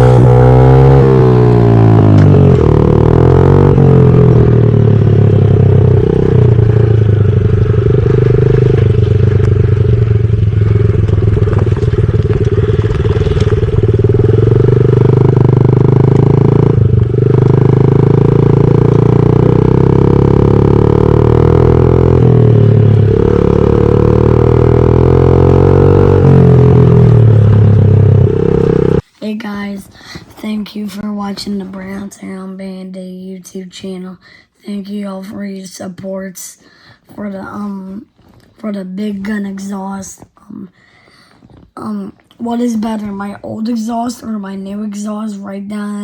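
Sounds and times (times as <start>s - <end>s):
dirt bike engine revving: 0.0s - 29.1s.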